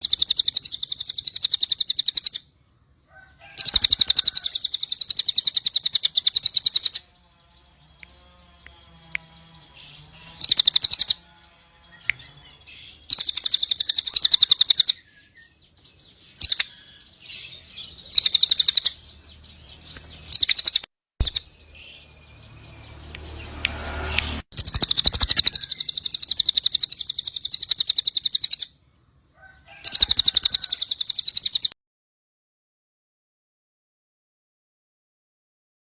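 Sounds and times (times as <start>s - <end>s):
songbird high-pitched chattering: 0.0s - 2.4s, 3.6s - 7.0s, 10.2s - 11.2s, 12.0s - 22.1s, 24.2s - 28.7s, 29.8s - 31.7s
quiet bird chirps: 0.0s - 31.8s.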